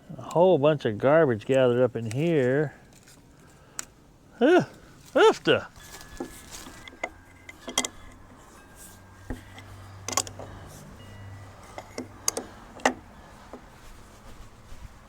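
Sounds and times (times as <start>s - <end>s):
clicks and knocks on metal: 6.2s - 8.2s, 9.3s - 10.6s, 11.6s - 13.7s.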